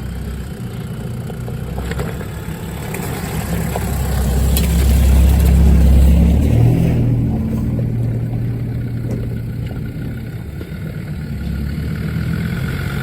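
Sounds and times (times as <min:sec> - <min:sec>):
off-road vehicle engine: 0:00.0 - 0:13.0.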